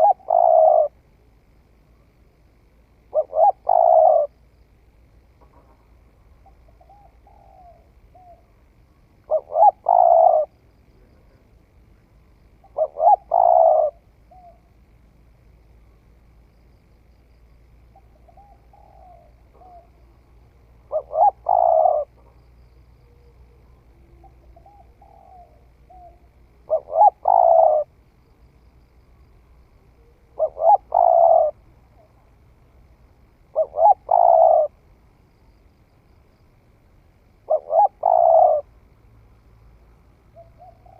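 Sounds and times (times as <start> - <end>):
dove cooing: 0.0 - 1.0, 3.1 - 4.3, 5.4 - 8.6, 9.3 - 10.6, 12.6 - 14.7, 17.9 - 22.4, 23.0 - 28.0, 29.8 - 32.3, 33.5 - 34.8, 37.4 - 38.7, 40.3 - 40.9.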